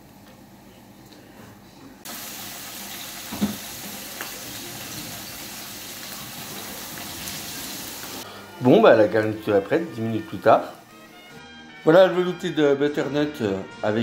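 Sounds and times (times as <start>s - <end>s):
food sizzling in oil: 2.1s - 8.2s
frying pan knock: 3.2s - 3.6s.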